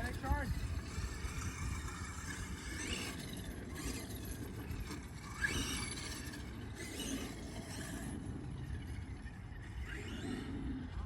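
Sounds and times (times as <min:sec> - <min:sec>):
wind on microphone: 0:00.0 - 0:03.2.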